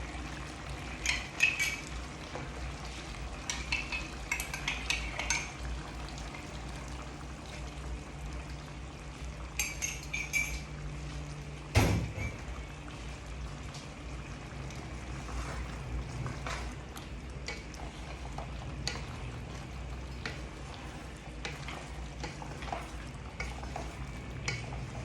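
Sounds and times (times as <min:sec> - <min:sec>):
utensils and cookware clattering: 0:00.8 - 0:02.2, 0:03.3 - 0:05.7, 0:09.5 - 0:10.8, 0:11.8 - 0:12.6.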